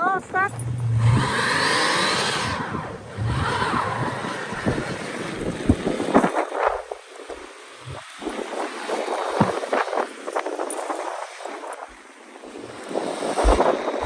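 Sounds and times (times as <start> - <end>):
wheels spinning in snow: 0.0 - 14.0
wind buffeting microphone: 0.0 - 14.0
car engine revving: 0.4 - 5.9.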